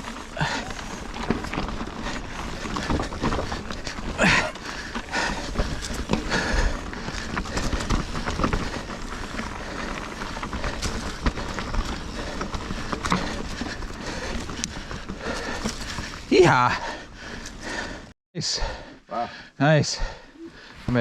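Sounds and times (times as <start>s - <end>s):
bike clicks and rattles: 0.0s - 18.1s
bike tyre and trail noise: 0.0s - 21.0s.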